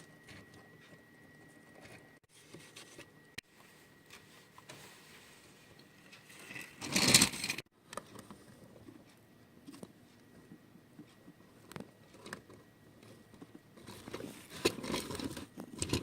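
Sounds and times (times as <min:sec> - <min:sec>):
loud scraping rustle: 0:06.3 - 0:07.7.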